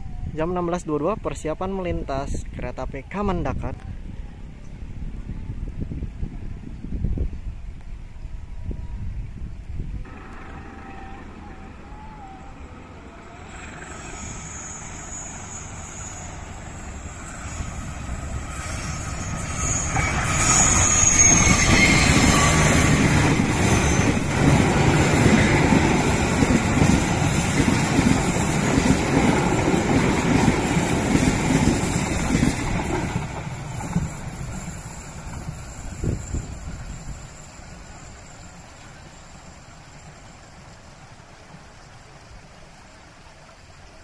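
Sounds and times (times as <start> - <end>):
diesel locomotive engine: 9.0 - 44.0
train wheels clattering on rails: 12.8 - 38.6.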